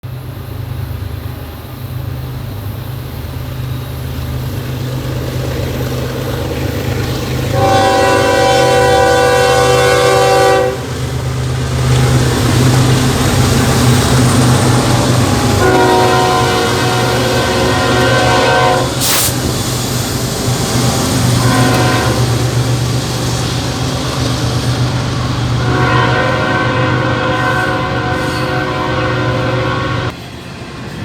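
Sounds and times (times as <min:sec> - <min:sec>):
diesel locomotive engine drone: 0:00.0 - 0:31.0
rail rumble and hiss: 0:00.0 - 0:31.0
train air horn blast: 0:07.5 - 0:11.0, 0:15.3 - 0:19.5, 0:21.2 - 0:22.5, 0:25.6 - 0:30.2.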